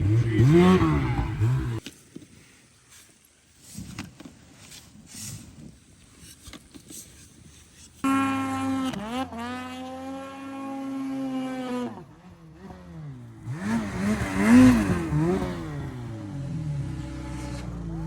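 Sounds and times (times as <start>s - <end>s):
snowmobile engine revving: 0.0s - 1.8s, 8.0s - 18.0s.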